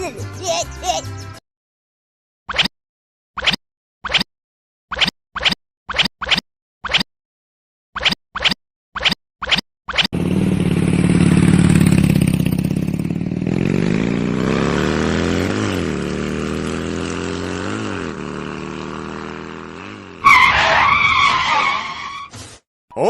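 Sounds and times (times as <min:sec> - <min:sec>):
tractor engine revving: 0:10.2 - 0:21.9.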